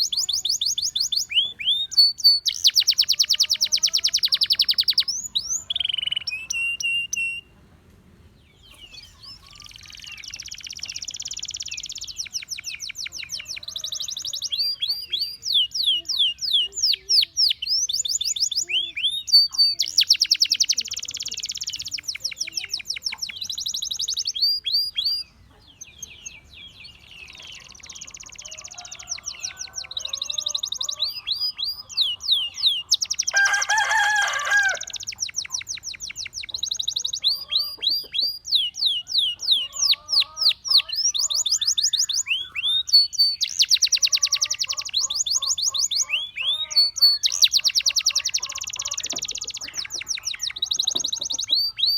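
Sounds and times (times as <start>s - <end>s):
canary singing: 0.0s - 7.6s, 8.5s - 51.9s.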